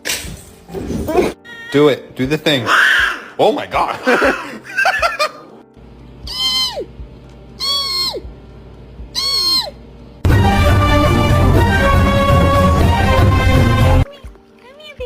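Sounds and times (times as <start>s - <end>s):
cat meowing: 1.4s - 1.8s
loud music: 10.2s - 14.1s.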